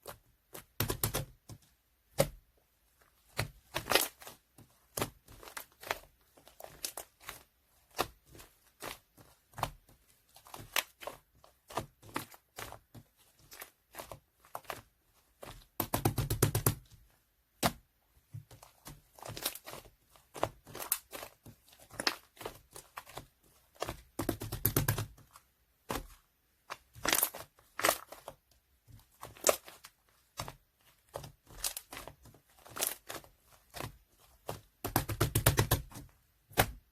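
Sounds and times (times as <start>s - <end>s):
slime squishing and popping: 29.1s - 36.9s.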